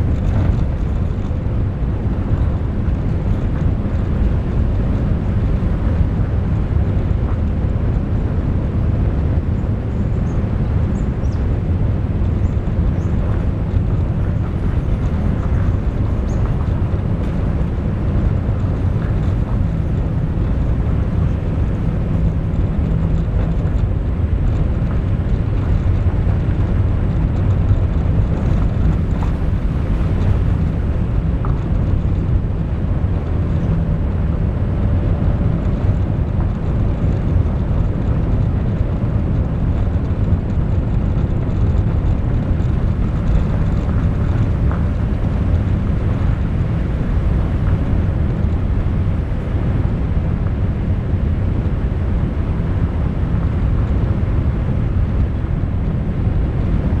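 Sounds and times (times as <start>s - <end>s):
moving vehicle rumble: 0.0s - 57.0s.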